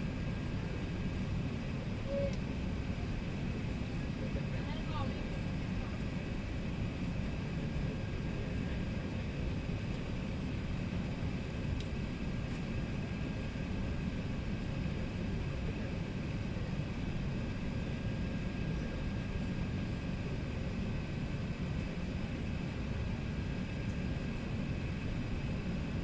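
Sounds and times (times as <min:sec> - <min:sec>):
airplane cabin engine and airflow noise: 0:00.0 - 0:26.0
faint click: 0:11.8 - 0:12.7.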